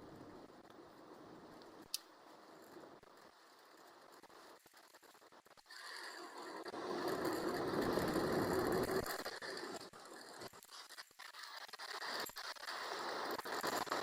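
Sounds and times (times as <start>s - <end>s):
bicycle tyre road noise: 0.0s - 14.0s
mechanical rattling and clicking: 3.0s - 14.0s.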